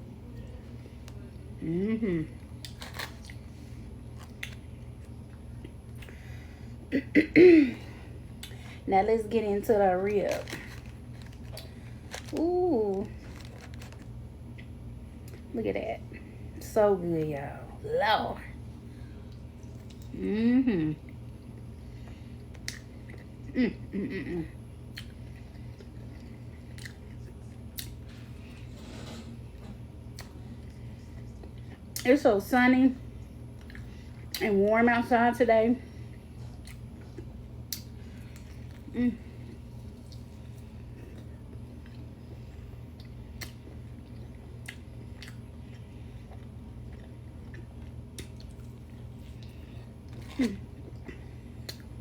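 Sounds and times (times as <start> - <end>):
steady low hum: 0.0 - 52.0
person murmuring: 1.6 - 2.4
person chewing meat: 2.4 - 6.2, 24.9 - 28.0, 36.4 - 38.9, 42.9 - 52.0.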